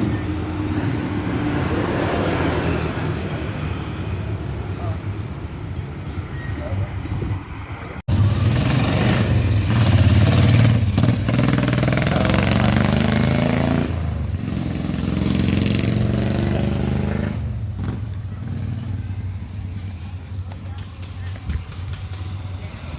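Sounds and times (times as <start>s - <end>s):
engine revving: 0.0s - 5.4s, 8.0s - 19.9s.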